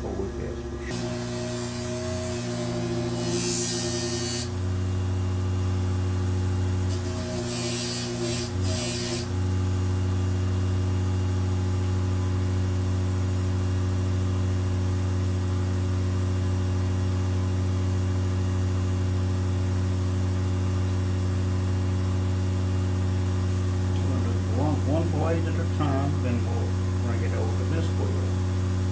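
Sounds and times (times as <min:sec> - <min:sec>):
polishing wheel motor humming: 0:00.0 - 0:28.9
blade hissing on wheel: 0:06.8 - 0:09.3.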